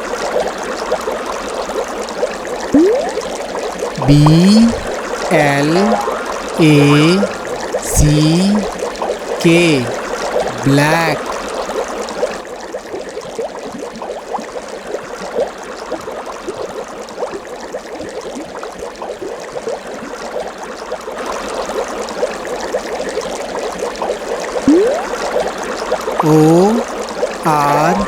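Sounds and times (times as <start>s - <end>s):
water bubbling and trickling: 2.8s - 3.3s, 24.7s - 25.2s.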